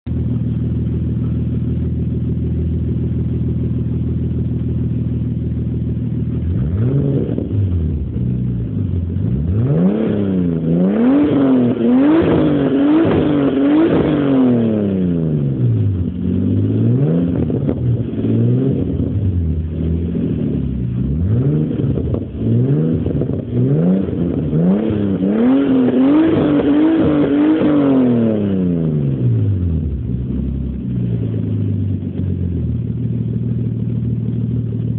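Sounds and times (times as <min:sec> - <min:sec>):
car engine idling: 0:00.1 - 0:34.9
car engine revving in quick blips: 0:06.4 - 0:33.0.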